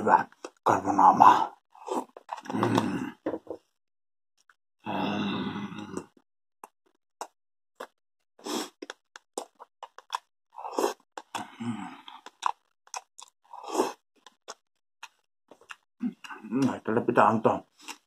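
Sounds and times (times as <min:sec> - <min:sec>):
person chewing and lip-smacking: 0:05.9 - 0:16.8, 0:17.8 - 0:18.0.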